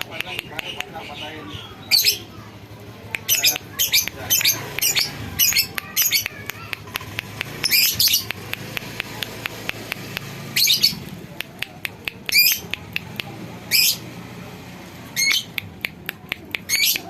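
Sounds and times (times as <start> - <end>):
short sharp ticks: 3.1 - 10.4.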